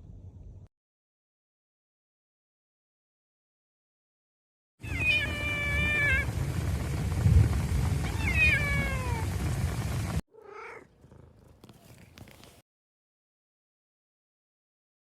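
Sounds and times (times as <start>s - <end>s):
low rumbling background: 0.0s - 0.7s, 4.8s - 10.2s
cat meowing: 4.8s - 6.3s, 8.0s - 9.3s, 10.3s - 12.6s.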